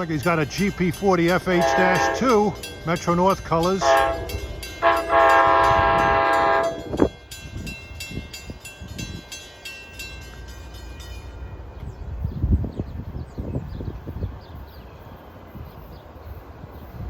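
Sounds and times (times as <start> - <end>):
railroad crossing bell ringing: 0.0 - 12.2
train rumble: 0.0 - 17.0
train air horn: 1.6 - 2.4, 3.8 - 6.9.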